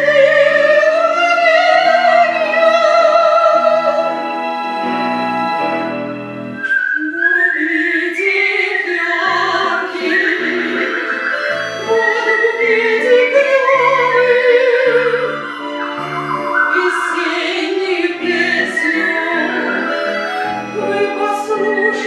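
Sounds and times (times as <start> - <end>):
high whistled melody: 0.8 - 22.0
person singing with vibrato: 6.6 - 22.0.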